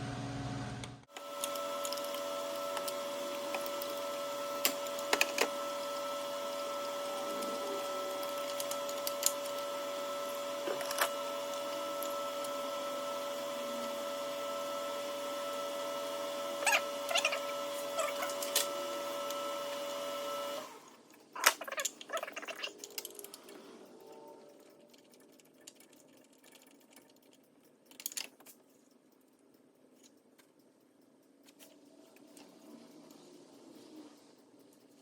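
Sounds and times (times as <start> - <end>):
machine hum: 0.0 - 26.8
tools clicking and rattling: 24.9 - 28.7.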